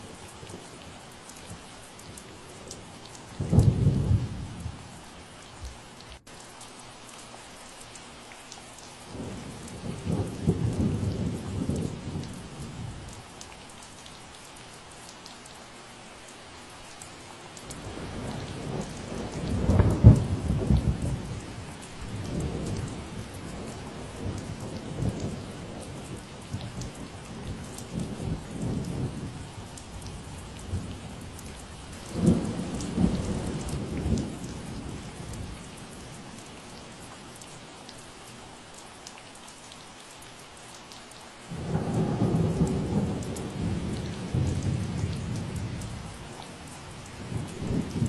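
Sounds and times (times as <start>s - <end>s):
steady rain: 0.0s - 48.0s
thunder rumbling: 3.4s - 4.9s, 9.1s - 13.0s, 17.8s - 36.7s, 41.5s - 48.0s.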